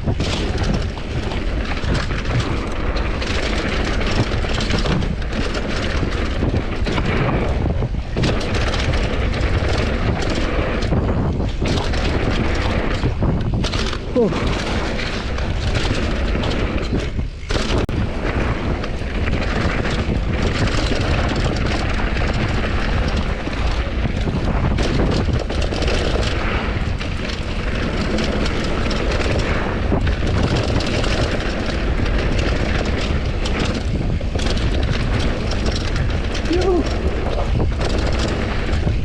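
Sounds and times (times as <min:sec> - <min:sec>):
bike tyres on rough dirt: 0:00.0 - 0:39.0
wind rushing over microphone: 0:00.0 - 0:39.0.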